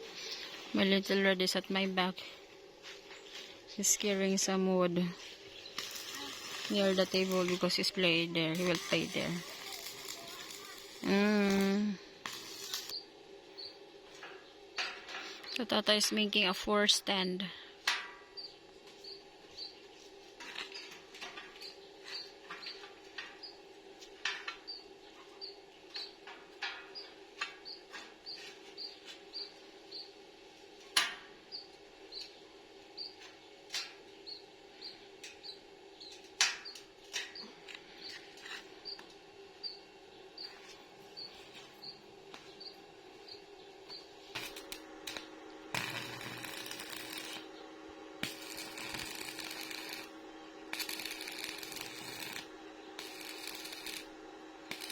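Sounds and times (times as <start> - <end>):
steady low hum: 0.0 - 20.5, 29.2 - 54.9
crackling hiss: 5.2 - 13.0, 43.9 - 47.5, 48.2 - 54.9
faint high chirp: 12.9 - 13.8.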